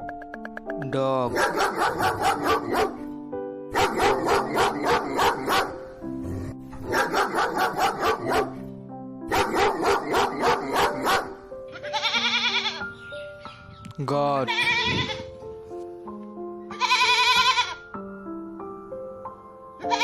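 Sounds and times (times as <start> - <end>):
background music with held notes: 0.0 - 20.0
dog barking rapidly: 1.3 - 3.0, 3.7 - 5.8, 6.8 - 8.6, 9.3 - 11.4.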